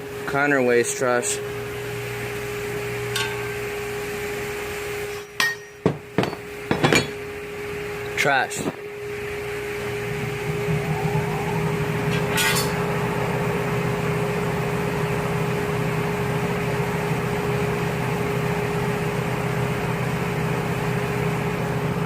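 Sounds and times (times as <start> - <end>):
machine humming and whirring: 6.2 - 21.2.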